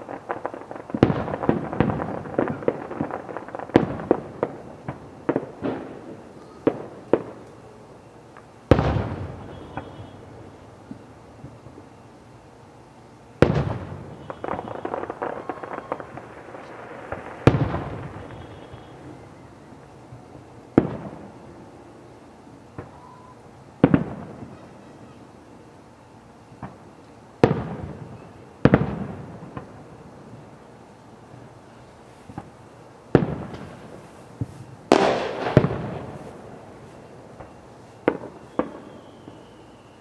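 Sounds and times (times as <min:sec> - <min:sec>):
crackling pops: 0:00.0 - 0:11.9, 0:13.4 - 0:19.4, 0:32.2 - 0:39.5
fireworks booming: 0:00.0 - 0:12.0, 0:13.3 - 0:25.2, 0:26.5 - 0:40.0.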